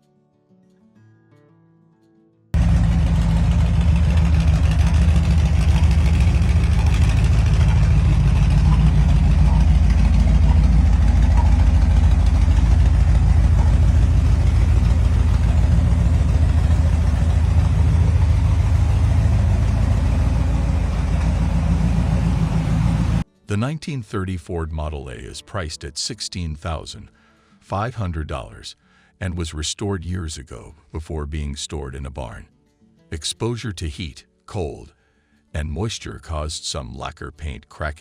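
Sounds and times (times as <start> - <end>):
car engine idling: 2.6 - 23.2.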